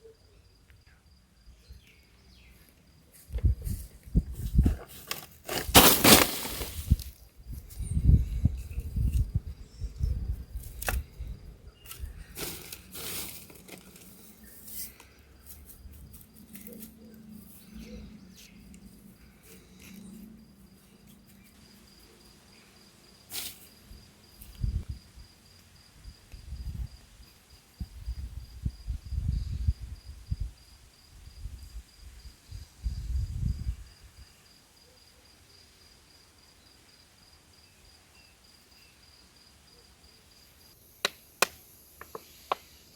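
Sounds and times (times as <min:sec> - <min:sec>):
insect trill: 0:04.2 - 0:42.9
sharp cracks and clicks: 0:41.0 - 0:42.7.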